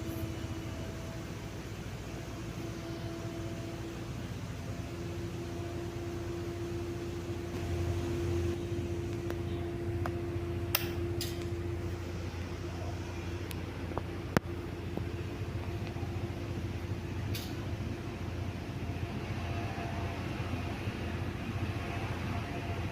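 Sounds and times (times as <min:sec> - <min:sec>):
ceiling fan motor hum: 0:00.0 - 0:22.9.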